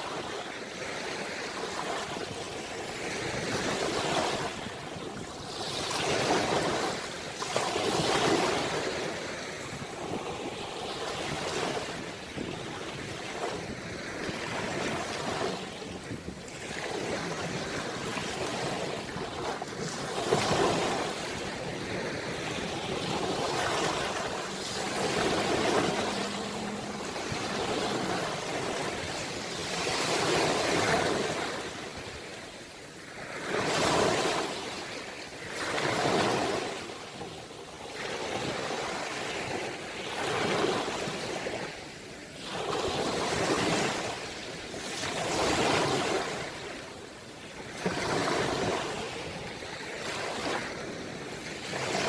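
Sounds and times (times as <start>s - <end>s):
wind on microphone: 0.0s - 35.0s
ocean waves breaking on shore: 0.0s - 52.0s.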